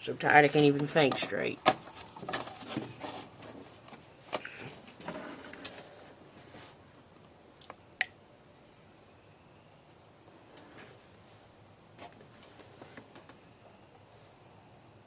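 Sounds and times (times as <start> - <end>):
sharp clicks and light knocks: 0.8 - 5.8.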